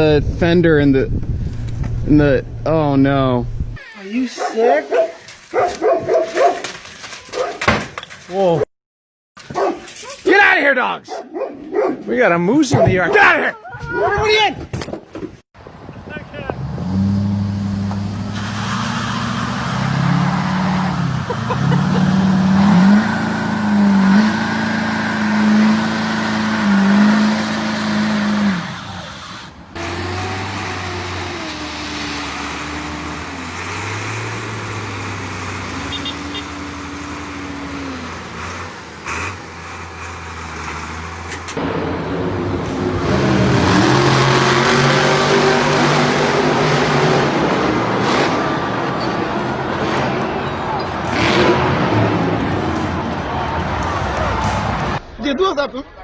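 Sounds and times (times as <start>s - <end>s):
vehicle engines accelerating: 15.6s - 55.0s.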